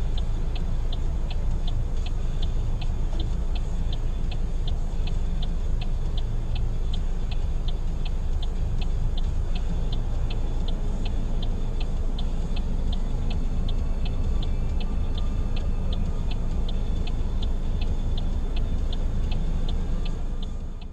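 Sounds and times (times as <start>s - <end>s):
car engine rumble: 0.0s - 20.9s
car turn signal clicking: 0.0s - 20.9s.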